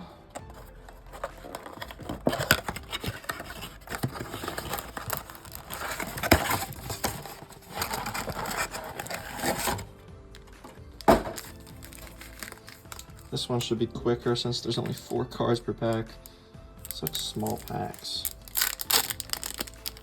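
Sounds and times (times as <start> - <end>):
packaging crinkling and tearing: 0.5 - 9.8, 11.0 - 13.3, 16.9 - 20.0.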